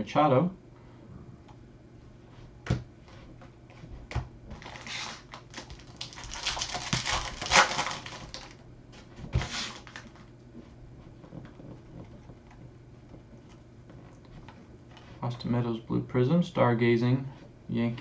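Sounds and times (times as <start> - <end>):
card pack wrapper crinkling and tearing: 4.6 - 8.6, 9.4 - 10.2.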